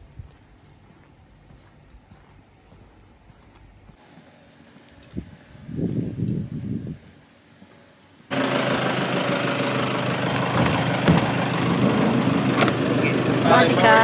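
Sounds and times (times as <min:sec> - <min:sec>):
car engine idling: 0:04.0 - 0:14.0
faint knocks: 0:10.3 - 0:13.2.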